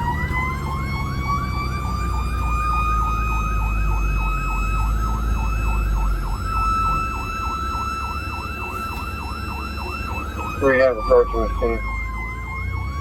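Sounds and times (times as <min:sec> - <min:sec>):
siren yelping: 0:00.0 - 0:13.0
steady tone climbing in pitch: 0:00.0 - 0:13.0.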